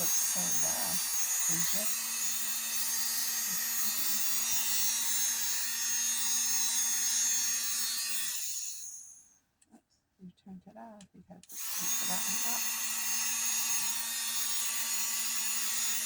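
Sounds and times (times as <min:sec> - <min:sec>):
toy hair dryer motor whirring: 0:00.0 - 0:09.2, 0:11.4 - 0:16.0.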